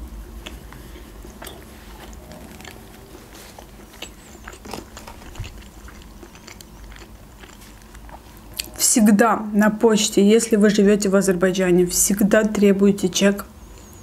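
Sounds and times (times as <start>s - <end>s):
person chewing food: 0.2s - 8.8s.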